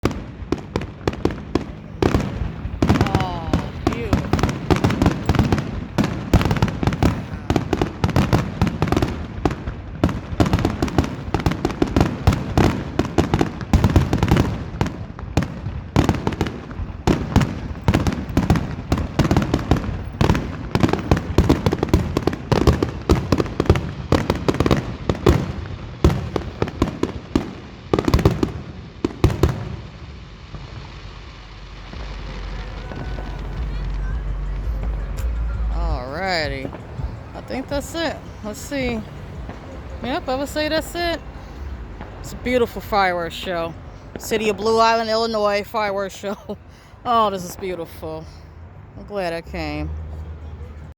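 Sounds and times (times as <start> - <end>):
fireworks crackling: 0.0 - 50.9.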